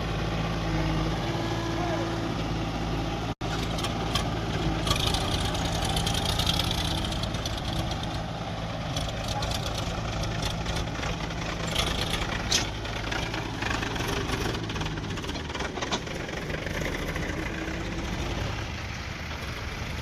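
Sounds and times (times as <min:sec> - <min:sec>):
diesel engine idling low: 0:00.0 - 0:20.0.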